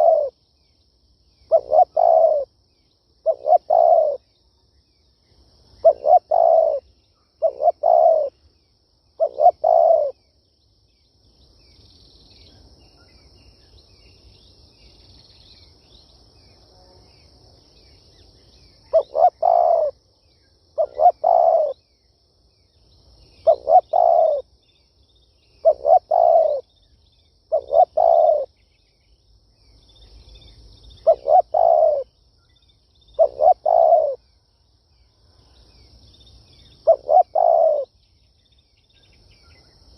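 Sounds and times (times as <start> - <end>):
dove cooing: 0.0 - 0.4, 1.5 - 2.5, 3.2 - 4.3, 5.8 - 8.4, 9.2 - 10.2, 18.9 - 20.0, 20.8 - 21.8, 23.4 - 24.5, 25.6 - 26.7, 27.5 - 28.5, 31.0 - 32.1, 33.2 - 34.2, 36.8 - 37.9
faint high chirping: 0.0 - 39.9.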